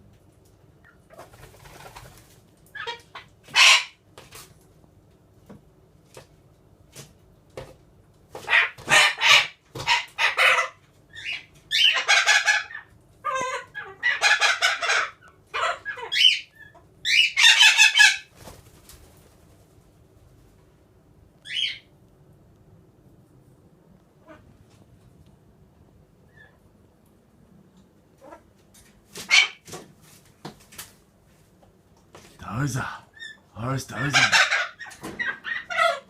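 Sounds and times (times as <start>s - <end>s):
chickens clucking and squawking: 0.8s - 4.0s, 8.4s - 19.0s, 33.3s - 36.0s.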